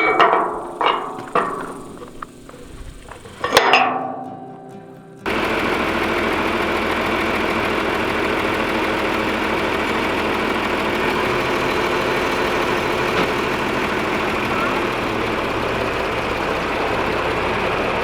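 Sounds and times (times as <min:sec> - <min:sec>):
tractor diesel engine chugging: 0:00.0 - 0:03.7, 0:05.3 - 0:18.0
metallic ring: 0:00.0 - 0:04.8.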